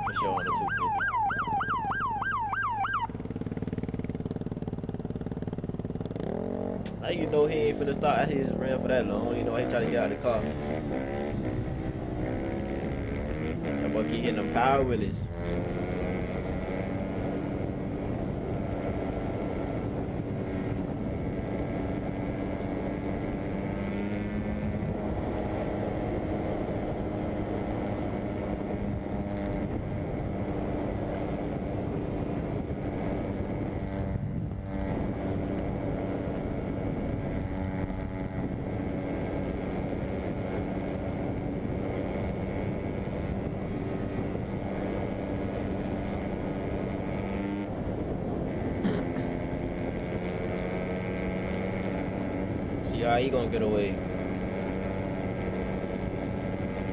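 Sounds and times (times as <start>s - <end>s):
dirt bike engine at high revs: 0.0s - 56.9s.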